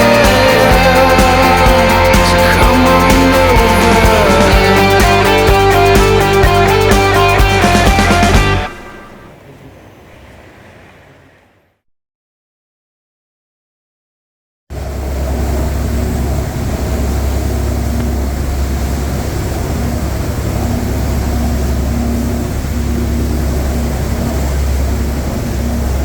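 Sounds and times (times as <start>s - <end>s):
boat engine droning: 0.0s - 11.8s, 14.7s - 26.0s
faint hum: 0.0s - 11.8s, 14.7s - 26.0s
wind and water hiss: 14.8s - 26.0s.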